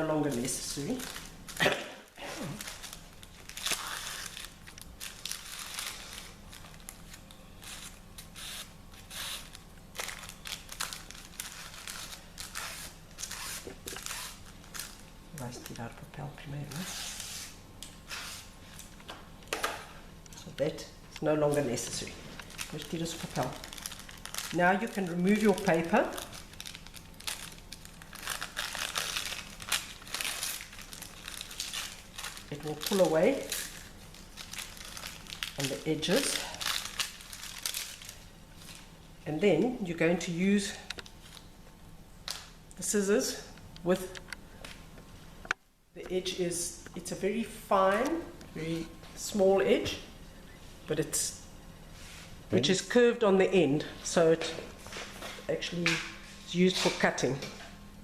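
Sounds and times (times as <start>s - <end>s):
fabric and paper rustling: 21.2s - 38.9s.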